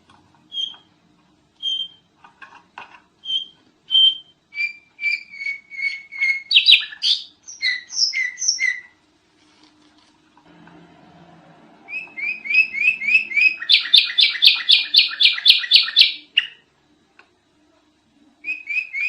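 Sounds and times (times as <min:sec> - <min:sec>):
bird singing whistled notes: 0:01.6 - 0:02.1, 0:03.2 - 0:09.0, 0:11.9 - 0:16.6, 0:18.4 - 0:19.0.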